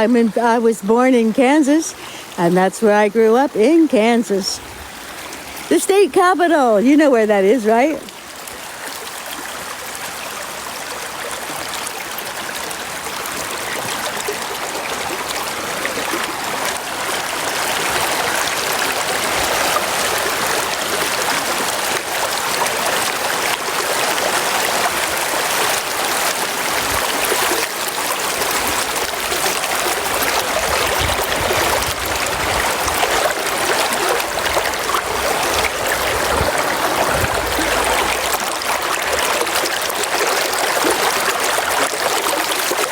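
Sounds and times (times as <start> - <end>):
river water rushing: 0.0 - 42.9.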